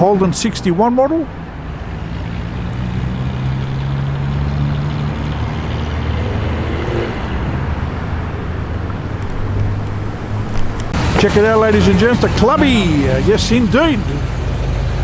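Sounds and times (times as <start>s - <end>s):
car engine running: 10.8s - 15.0s.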